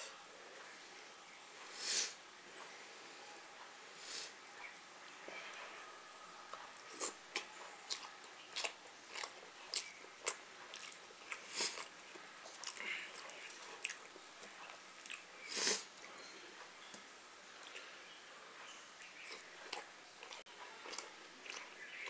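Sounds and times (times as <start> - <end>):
biting and chewing food: 6.5 - 17.0, 19.0 - 22.0.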